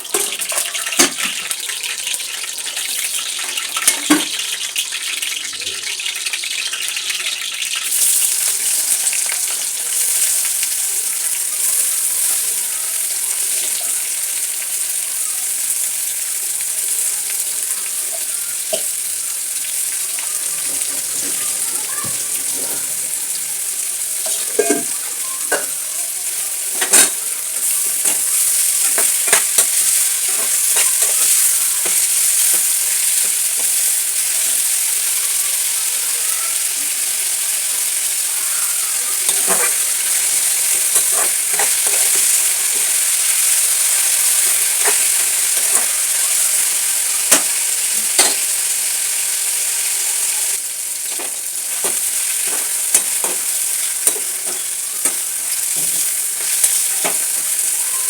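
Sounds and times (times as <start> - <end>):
curry sizzling in a pan: 0.0 - 58.0
spoon scraping a pan: 16.9 - 34.9, 38.7 - 48.7, 51.0 - 58.0.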